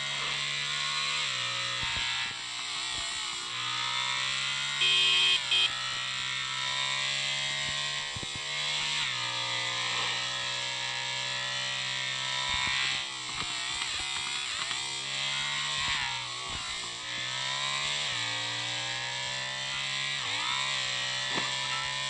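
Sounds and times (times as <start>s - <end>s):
motorcycle engine humming: 4.0s - 10.1s, 17.8s - 22.0s
loud two-part beep: 4.8s - 5.7s.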